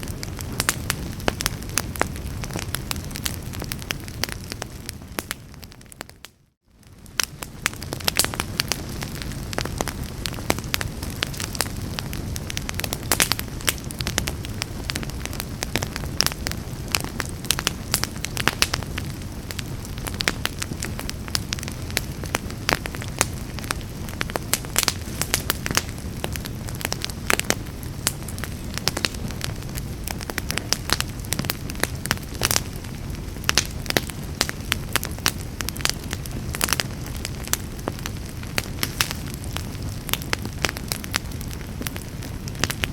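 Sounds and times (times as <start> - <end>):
low rumble of flames: 0.0 - 42.9
wood fire crackling and popping: 0.0 - 42.9.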